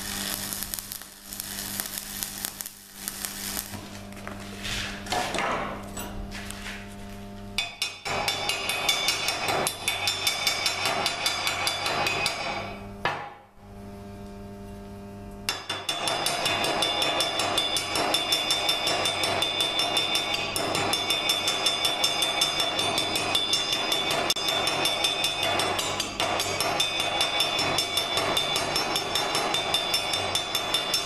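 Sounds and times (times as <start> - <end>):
steady low hum: 0.0 - 29.5
rapid metal-on-metal tapping: 7.6 - 12.6, 15.5 - 31.0.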